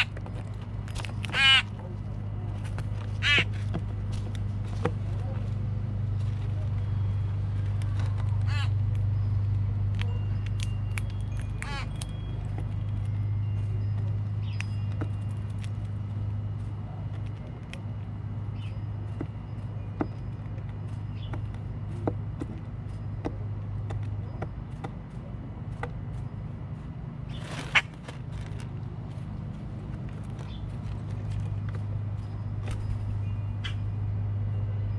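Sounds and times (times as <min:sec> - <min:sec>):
birds chirping: 0:00.0 - 0:09.4, 0:10.1 - 0:27.9, 0:29.0 - 0:34.9
steady low hum: 0:00.0 - 0:34.9.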